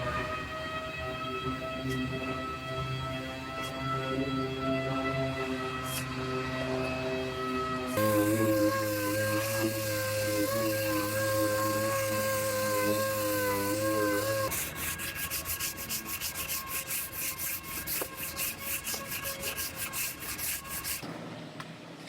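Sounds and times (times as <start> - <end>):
hand sanding strokes: 8.0 - 21.1.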